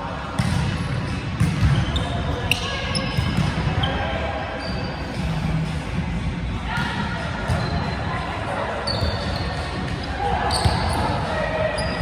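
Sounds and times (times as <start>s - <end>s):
players' voices: 0.0s - 12.0s
shoe squeaks: 8.8s - 9.6s, 10.5s - 11.1s, 11.8s - 12.0s.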